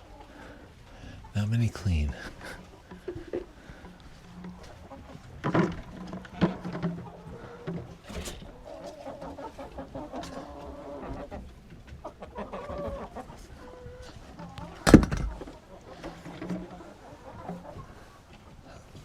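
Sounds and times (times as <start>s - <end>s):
hens clucking: 0.0s - 18.9s.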